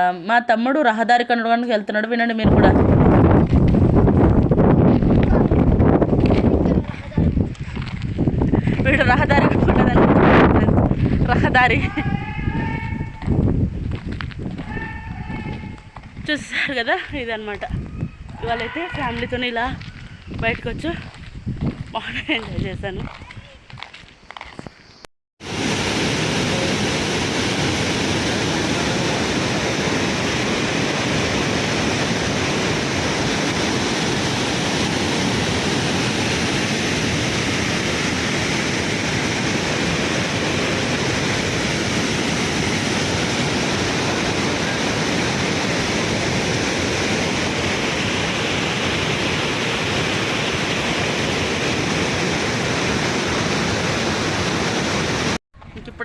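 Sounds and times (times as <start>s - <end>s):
water rushing through dam outlet: 25.4s - 55.4s.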